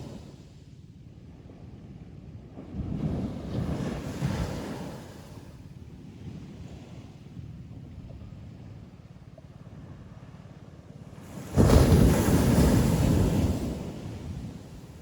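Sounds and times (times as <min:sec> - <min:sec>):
ocean surf washing: 0:11.1 - 0:15.0
wave breaking: 0:11.4 - 0:14.0.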